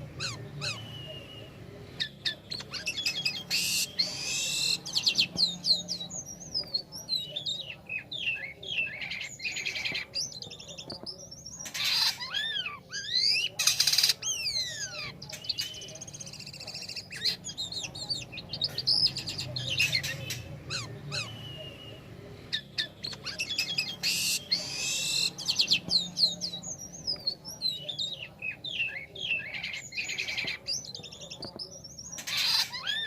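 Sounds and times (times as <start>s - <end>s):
harsh rasping bird notes: 0.0s - 6.6s, 11.6s - 27.1s
starling singing: 0.0s - 33.0s.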